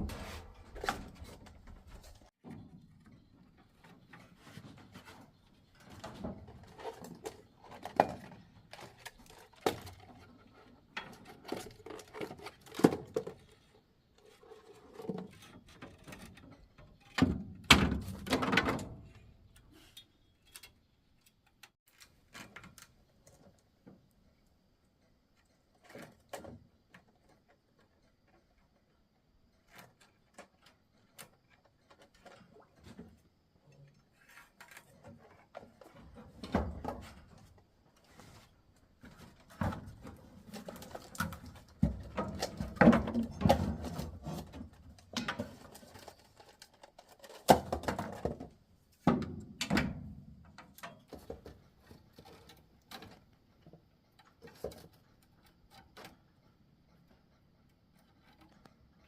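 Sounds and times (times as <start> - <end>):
objects knocking and clattering: 39.0 - 50.0.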